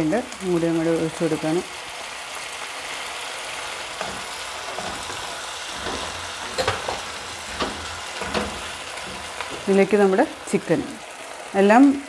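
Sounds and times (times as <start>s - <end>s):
onions sizzling in a pot: 0.0s - 12.0s
spatula knocking and scraping pan: 4.0s - 10.1s.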